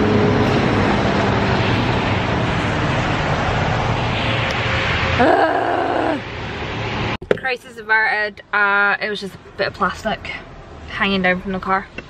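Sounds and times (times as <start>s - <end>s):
broad rushing noise: 0.0s - 7.2s
low engine hum: 0.0s - 7.6s.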